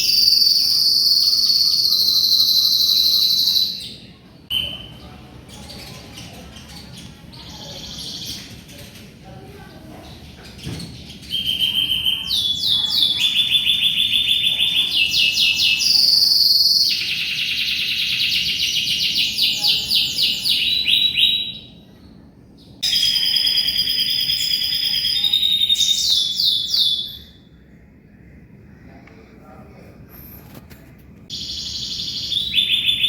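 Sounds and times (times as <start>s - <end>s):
canary singing trills: 0.0s - 8.6s, 11.0s - 22.0s, 22.7s - 27.6s, 31.3s - 33.0s.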